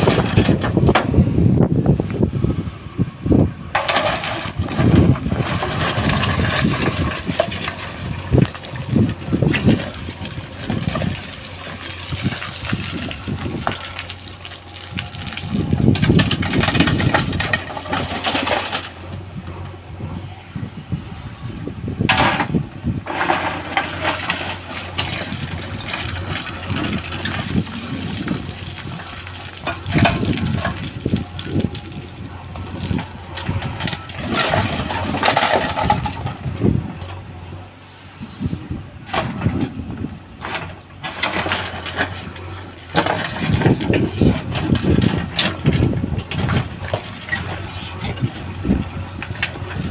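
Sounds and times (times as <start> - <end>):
diesel engine running: 0.0 - 49.9
stones scraping and clattering: 3.7 - 19.0, 22.1 - 37.2, 40.4 - 49.9.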